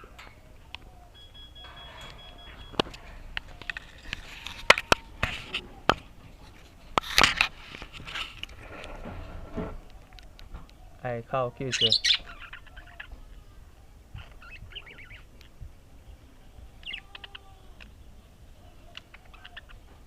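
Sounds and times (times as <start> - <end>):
budgerigars chirping and chattering: 11.6 - 13.2, 14.2 - 15.6, 16.8 - 17.4.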